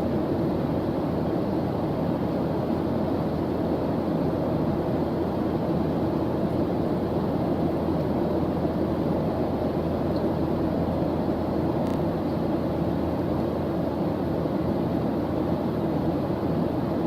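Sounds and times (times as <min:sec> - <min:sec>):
steady white noise: 0:00.0 - 0:17.0.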